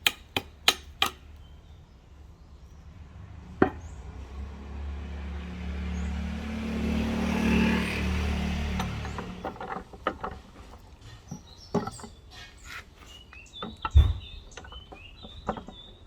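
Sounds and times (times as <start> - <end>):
passing vehicle engine hum: 2.7 - 10.0.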